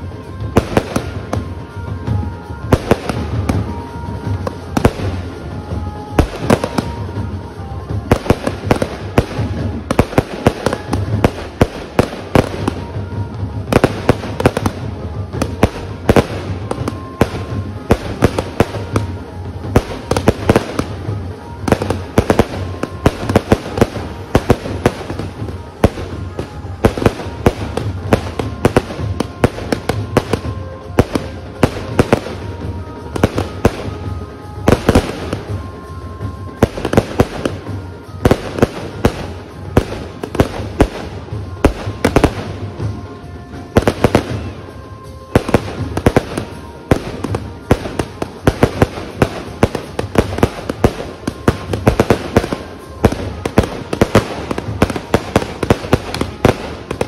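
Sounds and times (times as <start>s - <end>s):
firework bangs and crackling: 0.0s - 57.0s.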